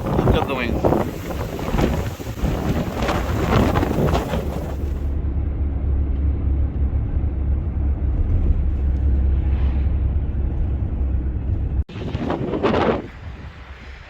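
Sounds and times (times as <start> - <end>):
wind buffeting microphone: 0.0 - 5.2, 8.0 - 14.0.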